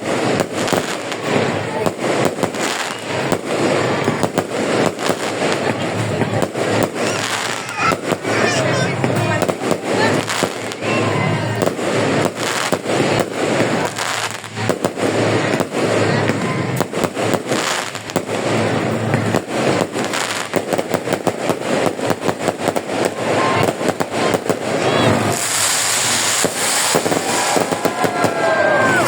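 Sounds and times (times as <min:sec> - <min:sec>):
fireworks bangs and crackling: 0:00.0 - 0:29.0.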